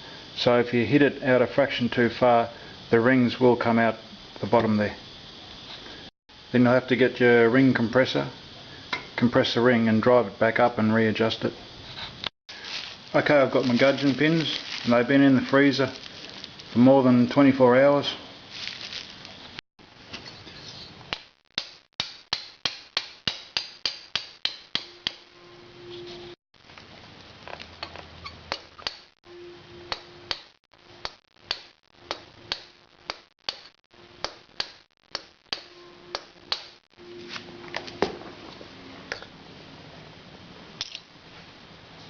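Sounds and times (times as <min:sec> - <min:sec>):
hammer tapping on metal: 0:22.0 - 0:25.2.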